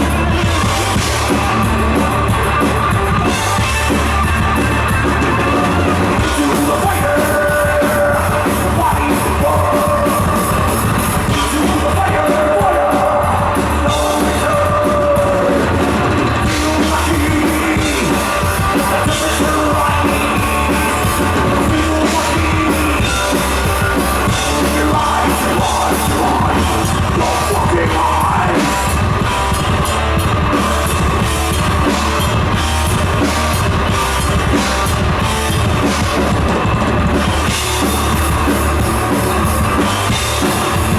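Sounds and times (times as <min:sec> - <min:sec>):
heavy metal band playing: 0:00.0 - 0:40.9
person singing and shouting: 0:05.3 - 0:29.5.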